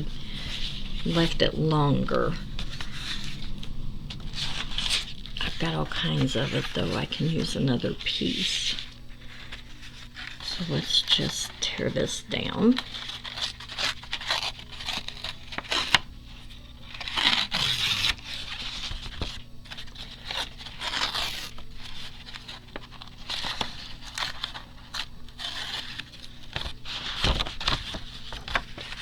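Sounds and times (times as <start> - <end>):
paper rustling and crinkling: 0.0 - 29.0
paper tearing: 12.8 - 16.1, 16.8 - 29.0.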